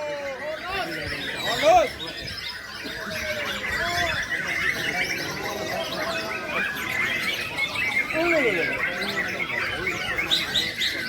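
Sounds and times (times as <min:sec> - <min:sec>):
songbirds chirping and whistling: 0:00.0 - 0:11.0.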